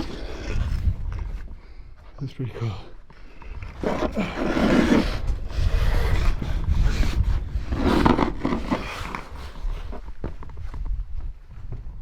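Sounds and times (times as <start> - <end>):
gear scraping against rock: 3.7 - 10.1.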